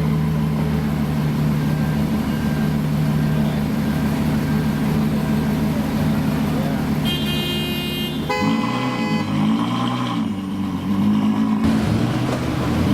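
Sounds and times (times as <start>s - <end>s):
car engine idling: 0.0s - 8.0s, 11.6s - 12.9s.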